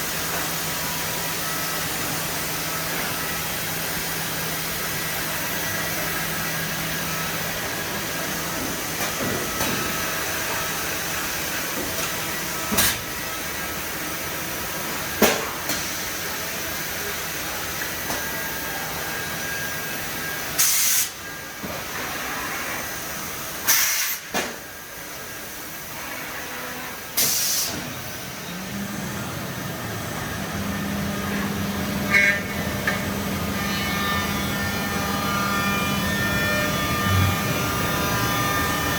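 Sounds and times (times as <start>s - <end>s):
cnc machine running: 0.0s - 20.6s, 28.0s - 38.9s
short hisses of air: 27.2s - 27.8s
steady motor tone: 28.4s - 38.9s.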